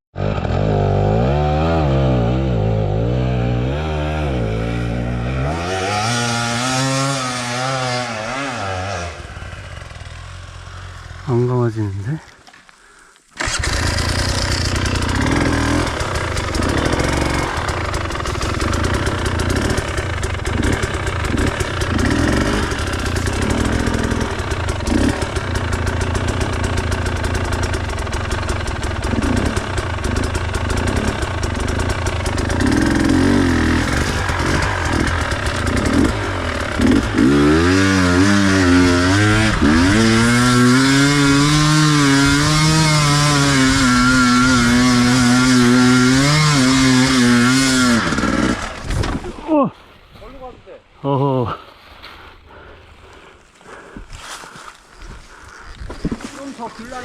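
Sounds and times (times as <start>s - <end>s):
dirt bike engine revving: 0.2s - 11.4s, 13.4s - 49.4s.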